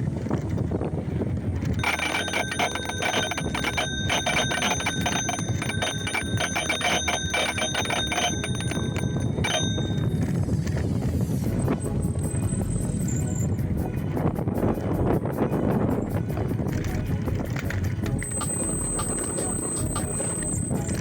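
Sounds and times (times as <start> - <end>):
bicycle bell ringing rapidly: 1.8 - 15.0, 15.7 - 21.0
steady low rumble: 8.6 - 21.0.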